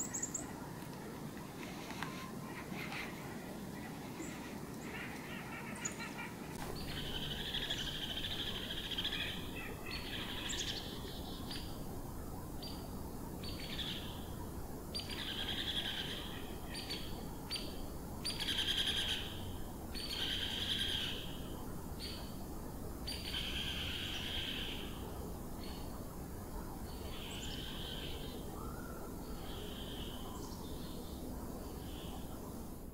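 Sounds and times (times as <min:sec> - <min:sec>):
small birds harsh buzzy calls: 0:01.6 - 0:11.8, 0:13.5 - 0:22.2.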